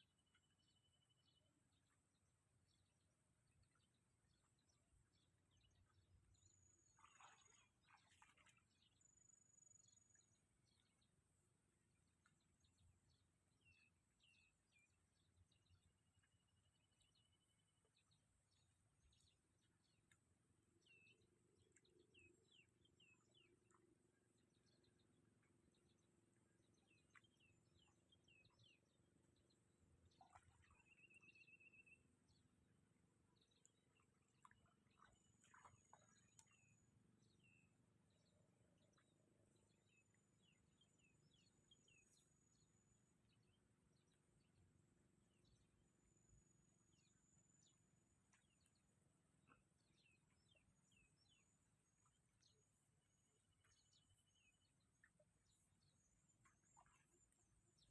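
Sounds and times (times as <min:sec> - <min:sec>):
faint bird chirps: 0:30.2 - 0:32.6.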